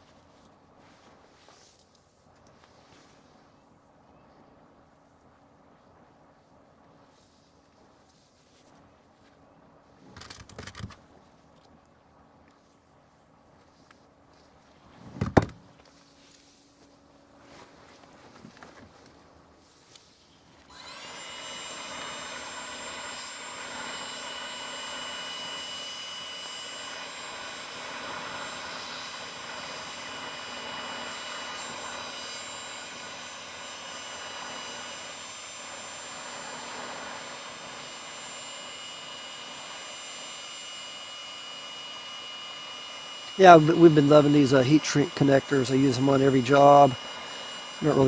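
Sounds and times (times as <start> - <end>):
heat gun blower whining: 20.7 - 48.0.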